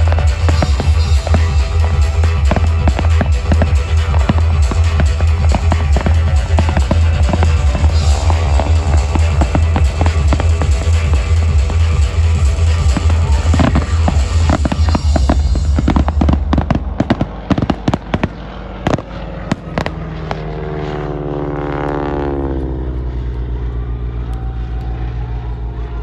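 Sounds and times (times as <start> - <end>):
music with heavy bass: 0.0 - 18.3
fireworks banging and crackling: 0.0 - 20.5
steady pitched drone: 0.0 - 26.0.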